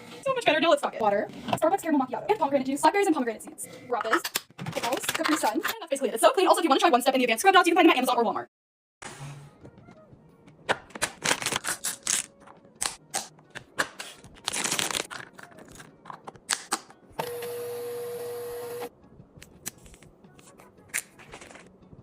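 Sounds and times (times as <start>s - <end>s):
packages clicking and clattering: 10.8s - 12.3s, 13.6s - 16.8s, 21.0s - 21.7s.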